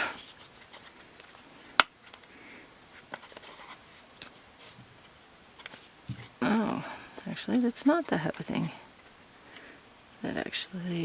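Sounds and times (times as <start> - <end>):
faint taps and handling noise: 0.1 - 6.4.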